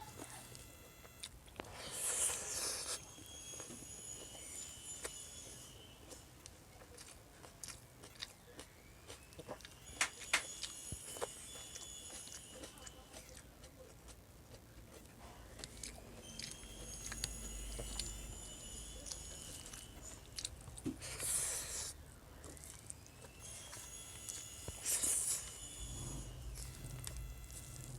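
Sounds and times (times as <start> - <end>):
faint high steady tone: 0.0 - 13.9, 15.2 - 27.9
chewing and biting: 0.0 - 27.9.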